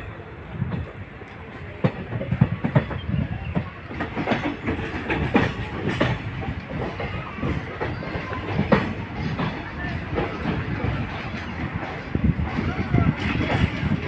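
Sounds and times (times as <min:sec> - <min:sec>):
train running rumble: 0:00.0 - 0:14.0
wheels clacking over rail joints: 0:00.6 - 0:14.0.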